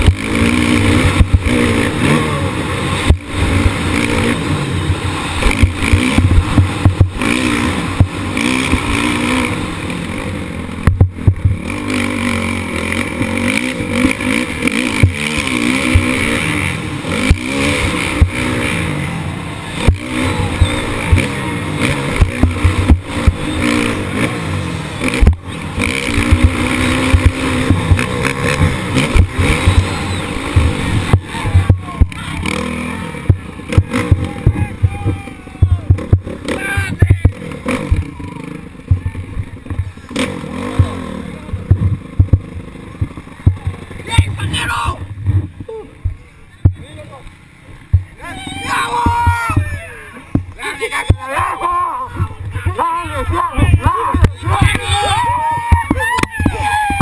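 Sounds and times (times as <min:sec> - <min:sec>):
motorbike engine revving: 0:00.0 - 0:57.0
sharp knocks and jolts: 0:02.9 - 0:09.4, 0:25.0 - 0:34.6.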